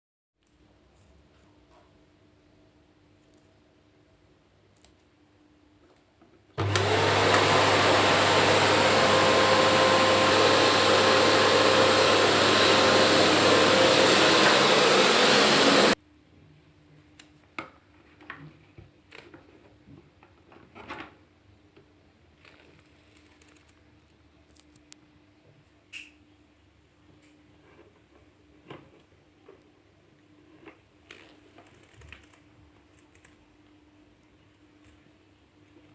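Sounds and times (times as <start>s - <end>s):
vacuum cleaner running: 6.6s - 16.0s.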